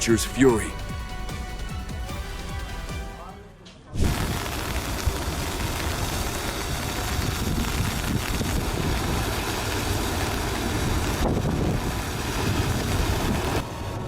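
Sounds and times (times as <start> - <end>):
debris flow roaring: 4.0 - 14.0
rumble of mud and rocks: 4.0 - 14.0.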